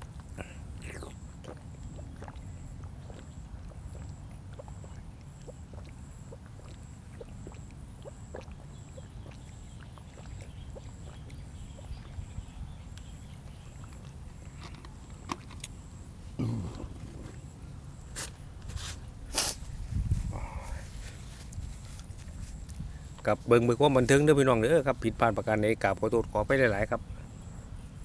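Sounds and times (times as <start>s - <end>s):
chewing with wet mouth clicks: 0.0s - 15.8s.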